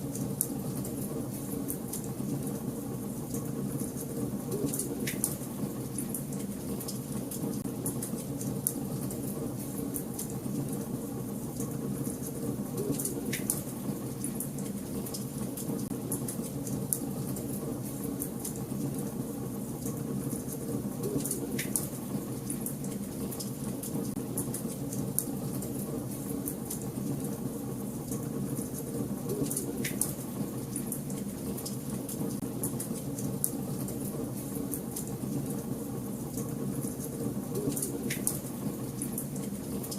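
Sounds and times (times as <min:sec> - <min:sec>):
fireplace fire crackling: 0:00.0 - 0:39.9
loud fire snaps: 0:04.7 - 0:06.2, 0:12.9 - 0:13.6, 0:37.7 - 0:39.5.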